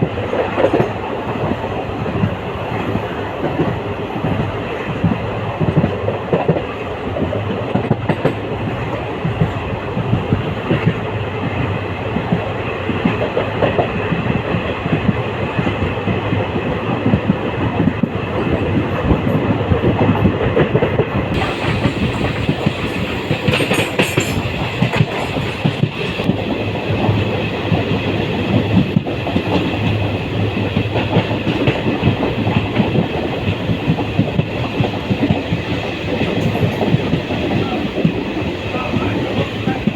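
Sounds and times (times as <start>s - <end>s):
train wheels clattering over rails: 0.0s - 39.9s
hiss and rattle: 21.4s - 39.9s.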